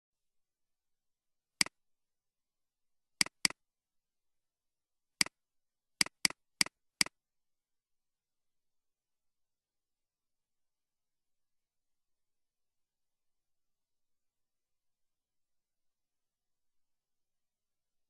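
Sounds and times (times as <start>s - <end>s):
computer mouse clicking: 3.2s - 3.6s, 6.0s - 7.2s.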